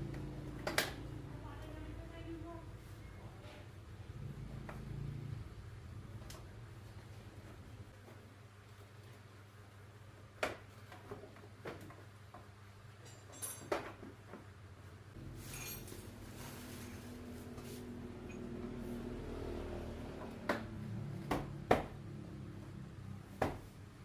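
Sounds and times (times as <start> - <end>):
tools clinking and knocking: 12.9 - 14.5, 15.4 - 16.0.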